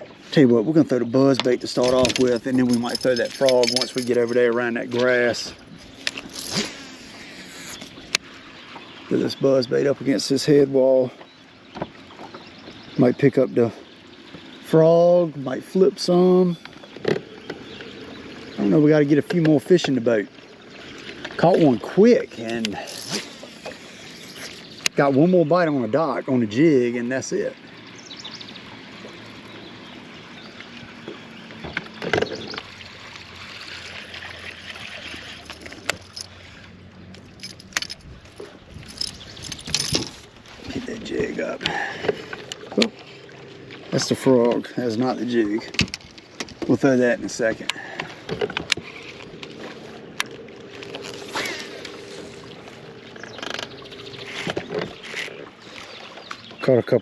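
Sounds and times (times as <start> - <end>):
water noise: 0.0 - 57.0
wind: 0.0 - 57.0
lure skipping across water: 1.4 - 8.3, 21.0 - 25.0, 48.4 - 56.4
reel ticking: 1.7 - 8.2, 22.0 - 25.0, 48.6 - 55.9
fishing reel click: 22.4 - 24.7.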